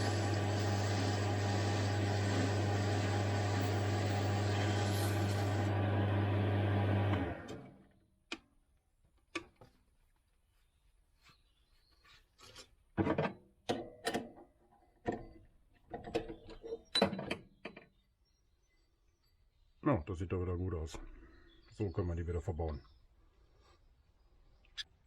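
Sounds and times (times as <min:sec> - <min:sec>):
lathe motor spinning down: 0:00.0 - 0:07.8.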